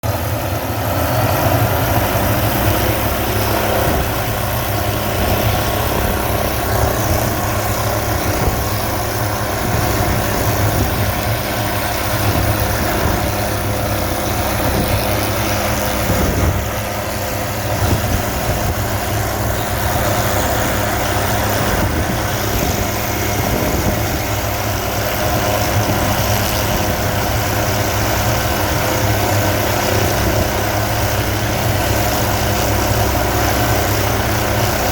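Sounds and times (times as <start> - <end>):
helicopter rotor throb: 0.0 - 34.9
helicopter turbine hiss and whine: 0.0 - 34.9.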